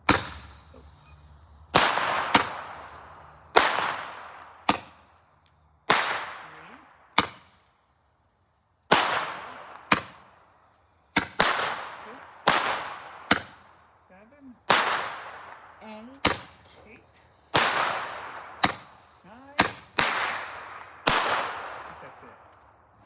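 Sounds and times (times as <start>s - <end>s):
firework bangs with hiss: 0.0s - 1.0s, 1.7s - 5.2s, 7.2s - 7.8s, 8.9s - 10.4s, 11.1s - 13.8s, 16.2s - 21.6s.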